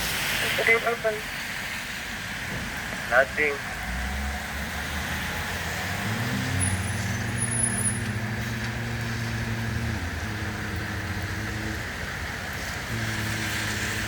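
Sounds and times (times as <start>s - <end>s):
heavy rain hiss: 0.0s - 6.8s, 7.4s - 14.0s
vehicle engine running: 5.3s - 14.0s.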